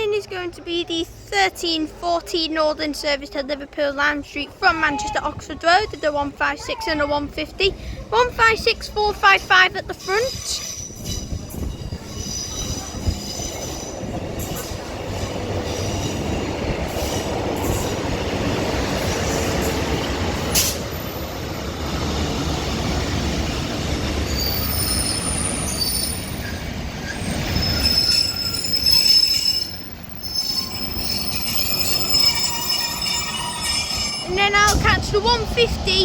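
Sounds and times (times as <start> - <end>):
diesel train rumbling: 0.0 - 36.0
high-pitched brake squealing: 9.9 - 14.8, 24.2 - 34.8.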